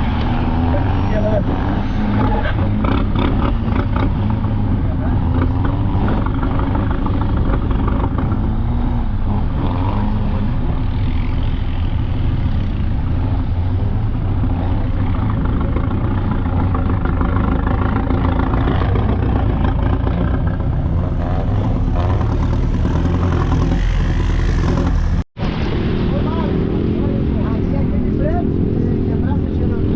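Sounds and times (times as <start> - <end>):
vehicle engine low rumble: 0.0 - 29.9.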